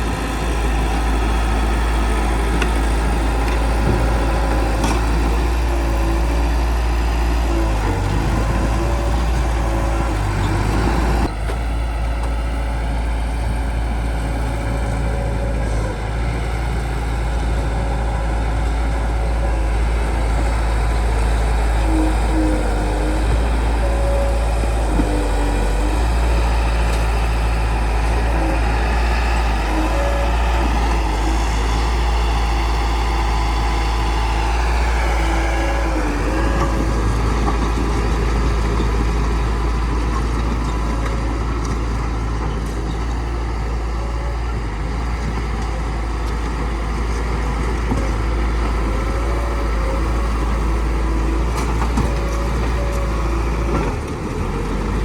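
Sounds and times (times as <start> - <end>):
bulldozer diesel engine rumbling: 0.0 - 55.0.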